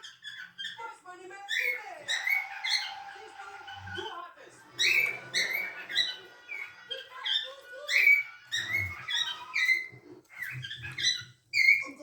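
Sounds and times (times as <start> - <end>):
cockatiels chirping: 0.0 - 12.0.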